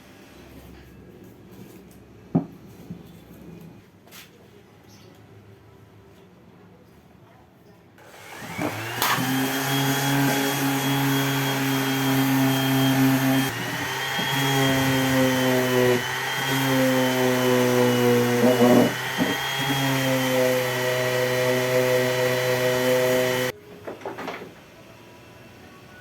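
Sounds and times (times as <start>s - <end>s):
power tool motor whining: 8.0s - 23.5s.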